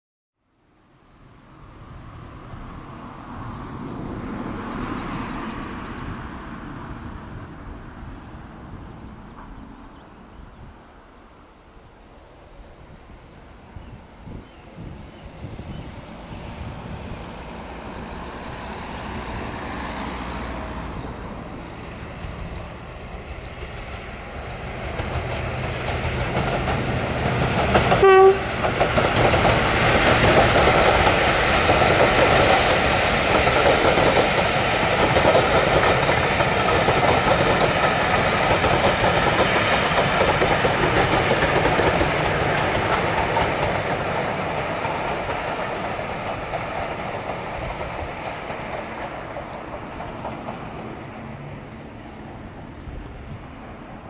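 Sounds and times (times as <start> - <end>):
train passing: 0.7 - 54.0
train horn toot: 27.9 - 28.6.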